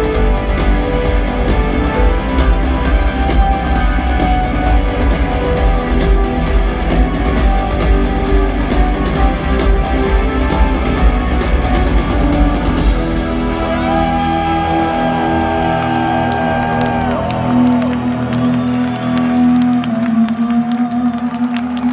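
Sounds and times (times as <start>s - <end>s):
live rock band playing: 0.0s - 14.1s
crowd whoops: 13.6s - 21.9s.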